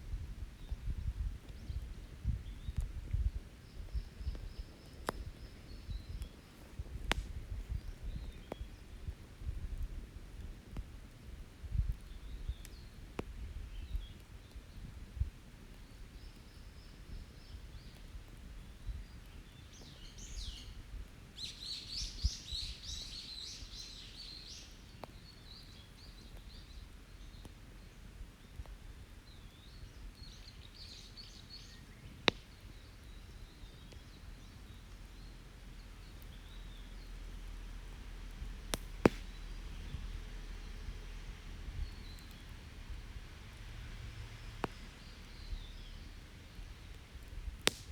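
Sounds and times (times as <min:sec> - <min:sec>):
campfire popping: 0:00.0 - 0:47.9
birds singing: 0:18.6 - 0:20.8, 0:21.4 - 0:28.6, 0:29.2 - 0:37.3, 0:41.7 - 0:42.8, 0:44.3 - 0:46.7.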